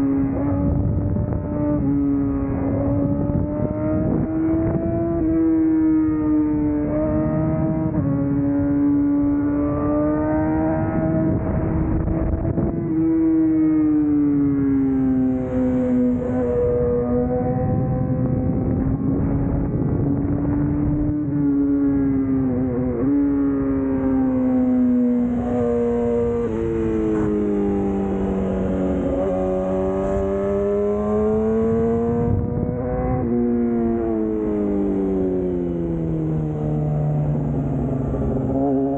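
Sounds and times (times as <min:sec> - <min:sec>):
motorcycle engine revving high: 0:00.0 - 0:38.9
wind noise: 0:00.0 - 0:38.9.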